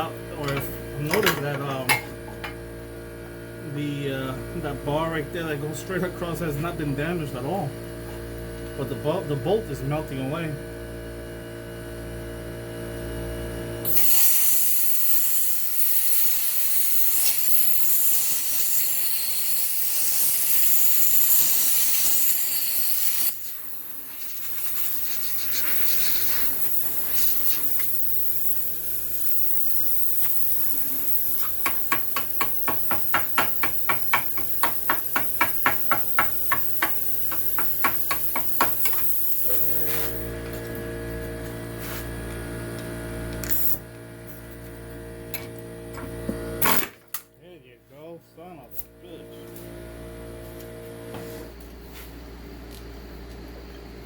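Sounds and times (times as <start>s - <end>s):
plasma cutter arc hissing: 13.8s - 40.3s, 43.4s - 43.8s.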